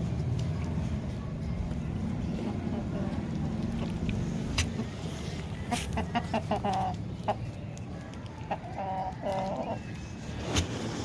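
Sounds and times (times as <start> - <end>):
hen clucking: 5.6 - 7.6, 8.4 - 9.9.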